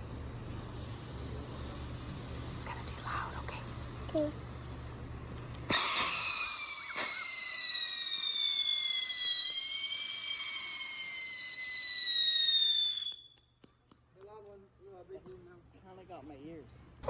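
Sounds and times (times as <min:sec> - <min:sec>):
firework crack: 0:00.4 - 0:14.1
shrill descending firework whistle: 0:05.7 - 0:13.4.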